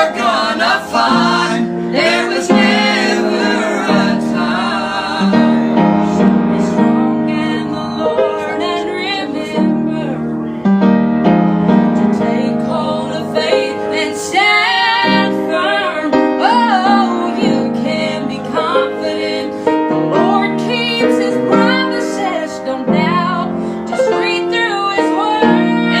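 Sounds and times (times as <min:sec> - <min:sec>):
piano chords: 0:00.0 - 0:26.0
woman singing: 0:06.5 - 0:10.3, 0:12.0 - 0:26.0.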